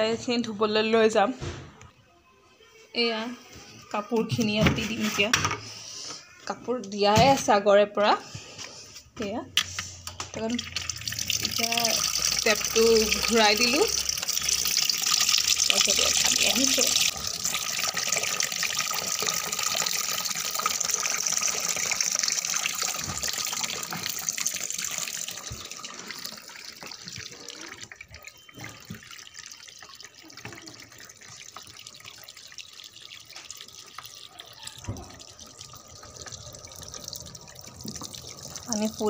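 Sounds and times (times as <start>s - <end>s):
water rushing into washing machine: 10.4s - 39.0s.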